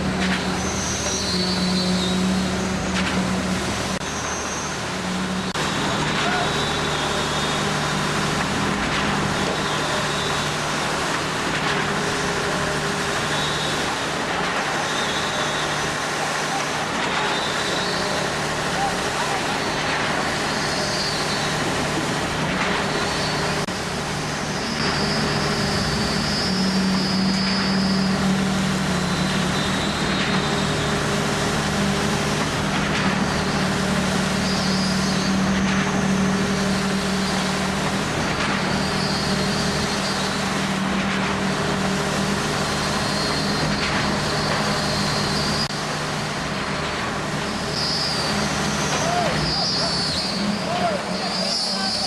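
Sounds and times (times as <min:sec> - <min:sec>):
heavy machinery engine drone: 0:00.0 - 0:52.0
high-pitched squeals: 0:47.7 - 0:52.0.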